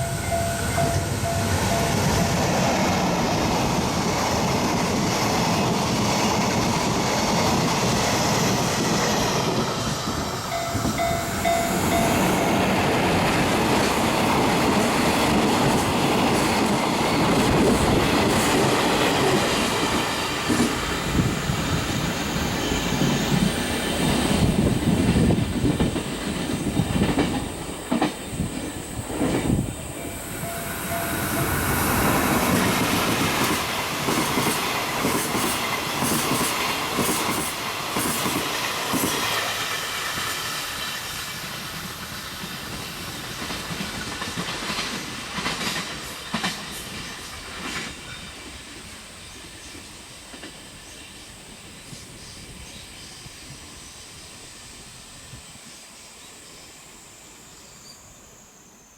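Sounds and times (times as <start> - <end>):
wagons hissing and clattering: 0.3 - 48.1
train wheels clacking over rail joints: 22.8 - 29.6, 31.2 - 48.3.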